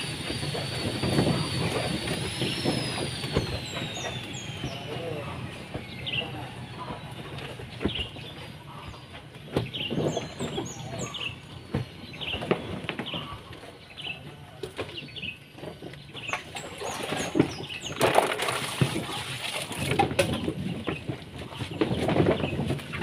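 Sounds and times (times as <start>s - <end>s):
small birds chirping: 1.3s - 18.0s.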